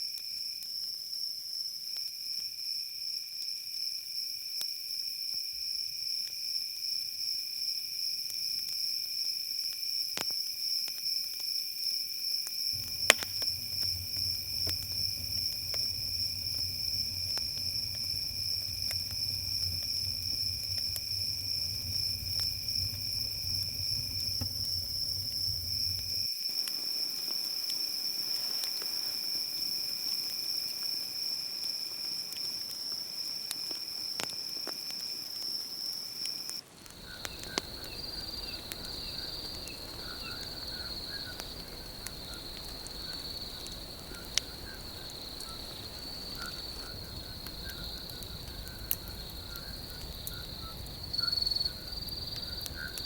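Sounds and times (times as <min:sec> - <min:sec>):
crickets trilling: 0:12.7 - 0:53.0
sparse clicks: 0:12.8 - 0:26.3, 0:37.0 - 0:53.0
pulsing insect chirp: 0:12.8 - 0:32.0, 0:37.0 - 0:53.0.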